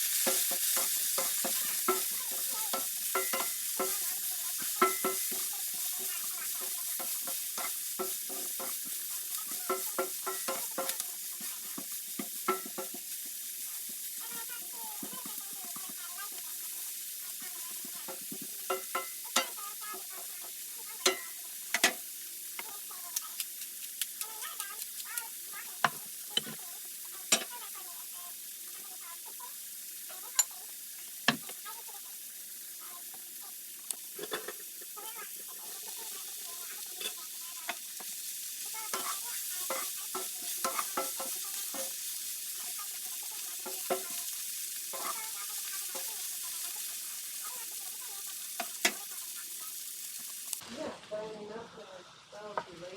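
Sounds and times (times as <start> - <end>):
vegetables sizzling in a frying pan: 0.0 - 52.9
utensil scraping a pan: 0.1 - 13.2, 34.2 - 34.9, 38.9 - 42.0.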